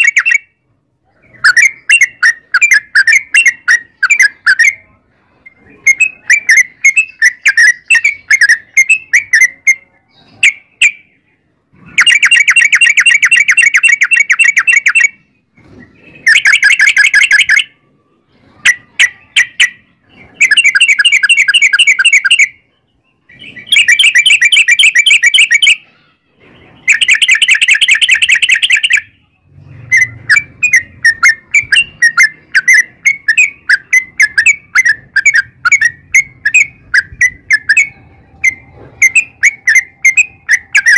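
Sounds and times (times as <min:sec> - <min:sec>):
bird chirping: 0:00.0 - 0:40.9
bird rolling trills: 0:29.8 - 0:40.9.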